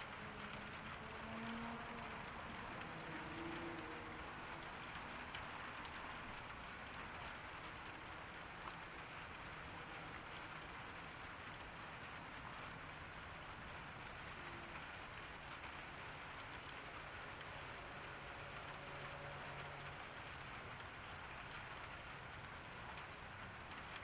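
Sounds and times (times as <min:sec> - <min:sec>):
rain pattering on a garden: 0:00.0 - 0:24.0.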